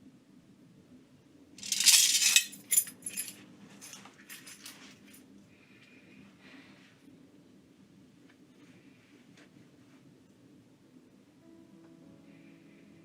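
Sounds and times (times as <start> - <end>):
jangle of small hard objects: 1.6 - 4.8.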